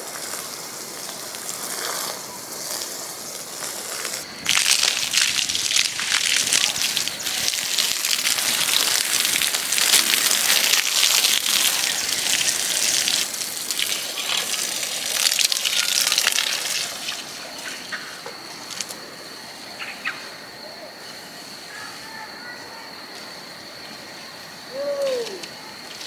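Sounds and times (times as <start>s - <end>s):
water gushing and spattering: 0.0s - 18.0s.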